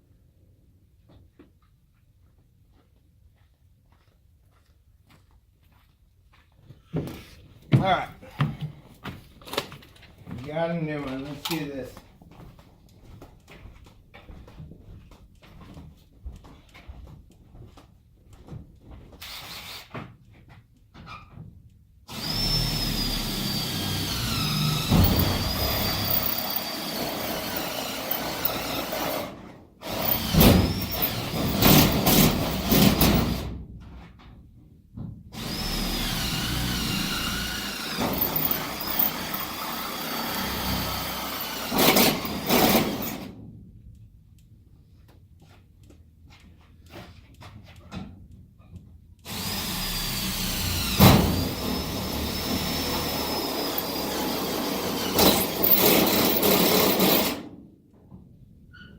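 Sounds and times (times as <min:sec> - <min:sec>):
cordless drill boring holes: 0:19.2 - 0:19.9, 0:22.1 - 0:33.5, 0:35.4 - 0:43.3, 0:49.3 - 0:57.4.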